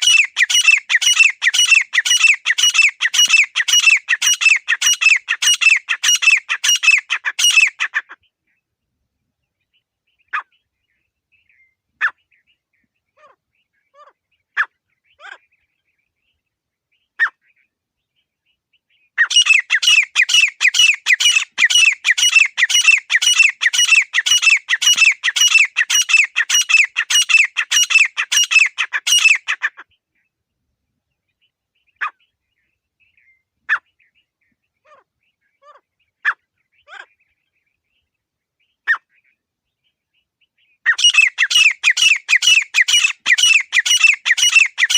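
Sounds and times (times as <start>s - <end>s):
francolin calling: 0.0s - 8.1s, 19.2s - 29.8s, 40.9s - 44.9s.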